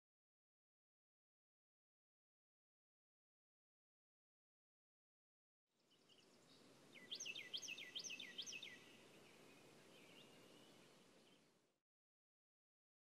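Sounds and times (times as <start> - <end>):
bird chirping: 5.8 - 11.6
faint outdoor ambience: 5.8 - 11.8.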